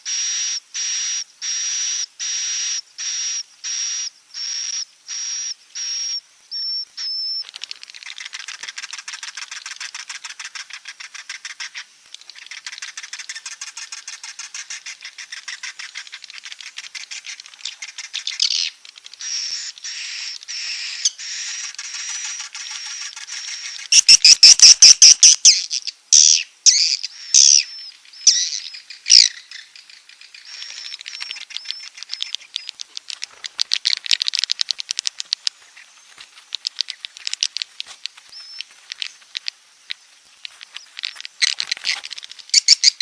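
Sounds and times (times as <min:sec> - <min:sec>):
swiftlet chirps and twitter: 0:00.1 - 0:33.0.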